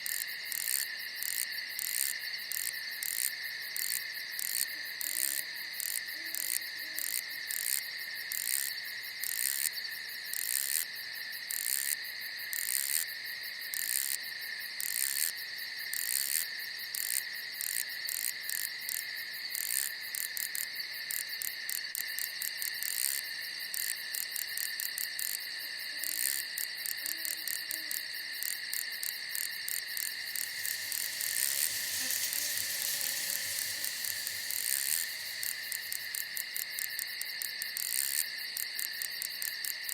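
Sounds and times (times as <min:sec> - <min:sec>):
quick repeated insect chirps: 0:00.0 - 0:13.1, 0:26.0 - 0:39.9
crickets trilling: 0:00.0 - 0:39.9.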